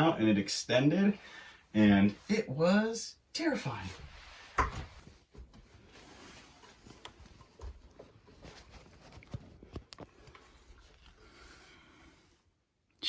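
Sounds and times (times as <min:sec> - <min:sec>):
steps and knocks on ladder rungs: 0:04.6 - 0:05.9, 0:06.6 - 0:10.5.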